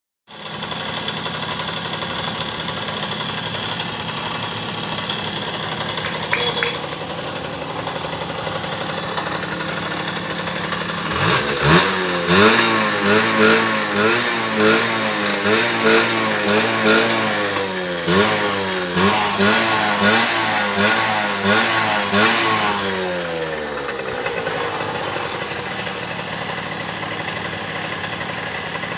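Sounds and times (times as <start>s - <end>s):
engine idling: 0.3s - 28.9s
engine revving in blips: 11.0s - 23.2s.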